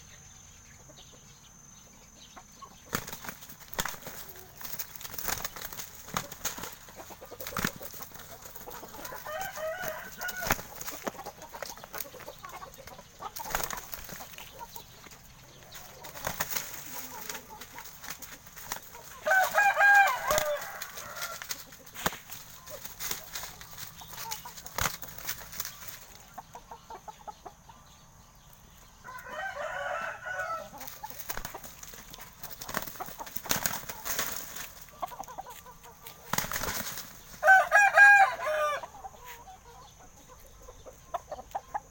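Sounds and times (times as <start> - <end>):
rooster crowing: 9.1 - 10.6, 19.2 - 21.4, 29.0 - 30.8, 37.4 - 39.0.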